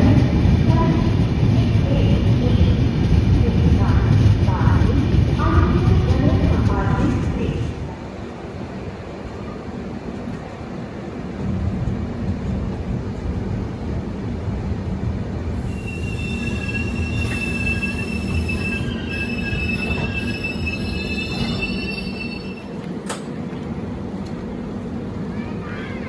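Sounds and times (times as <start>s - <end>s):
train rumbling: 0.0s - 26.0s
high wheel squeal: 15.6s - 22.8s.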